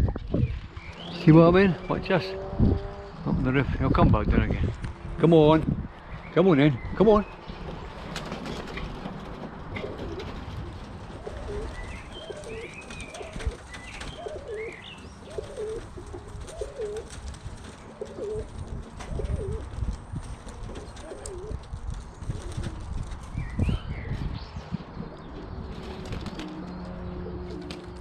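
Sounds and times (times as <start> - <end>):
pigeons cooing: 7.4 - 23.6, 24.8 - 28.0.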